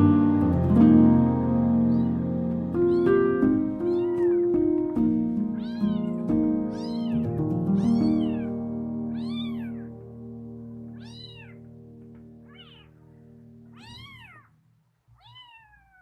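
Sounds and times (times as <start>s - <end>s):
soft background music: 0.0s - 14.4s
kitten mewing: 1.9s - 2.2s, 3.8s - 4.6s, 5.6s - 6.2s, 7.8s - 8.5s, 9.2s - 9.9s, 10.9s - 11.7s, 12.5s - 13.0s, 13.7s - 16.0s.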